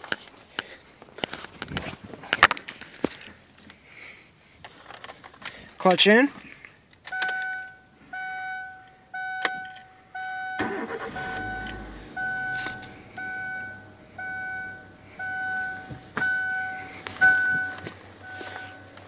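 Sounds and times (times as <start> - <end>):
car engine cranking and idling: 6.8 - 19.0
warning chime beeping: 7.1 - 19.0.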